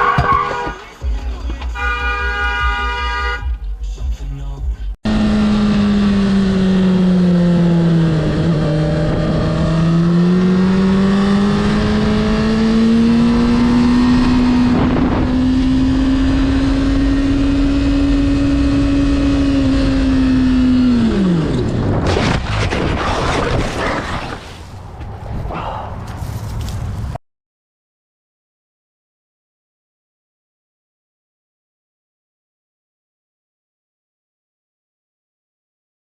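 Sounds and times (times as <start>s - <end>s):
car engine revving high: 5.0s - 21.8s
rough crackle: 22.0s - 24.9s.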